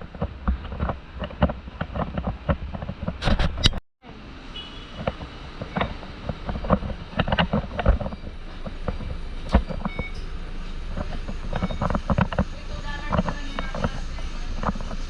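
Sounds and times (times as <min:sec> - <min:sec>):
rattles and knocks: 0:00.0 - 0:03.6, 0:05.0 - 0:10.2
vehicle rumble: 0:00.0 - 0:15.0.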